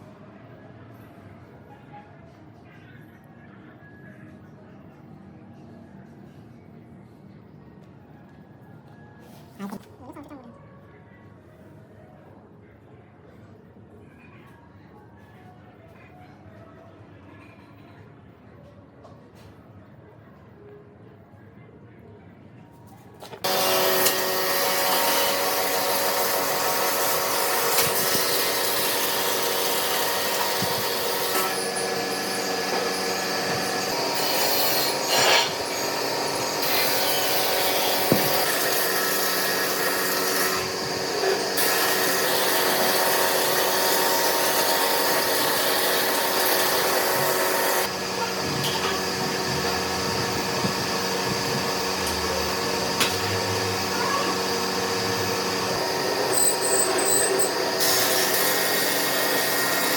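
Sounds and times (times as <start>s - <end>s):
lathe motor hum: 23.5s - 59.9s
tool scraping spinning workpiece: 25.4s - 59.9s.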